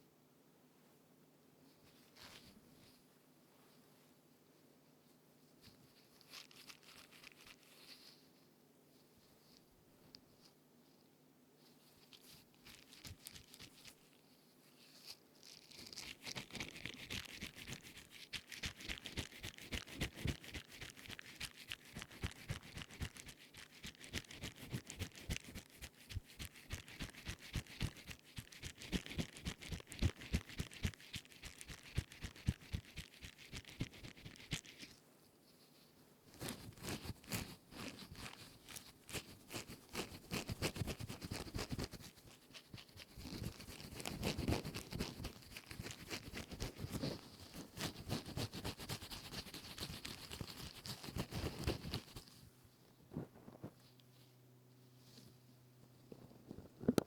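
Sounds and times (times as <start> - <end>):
sponge crackling and scratching: 6.0 - 8.2, 14.8 - 35.0, 36.3 - 52.4.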